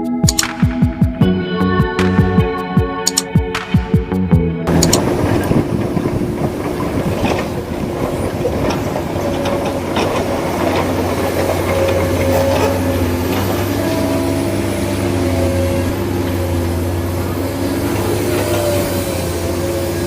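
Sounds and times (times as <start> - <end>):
heavy engine running: 4.2 - 20.0.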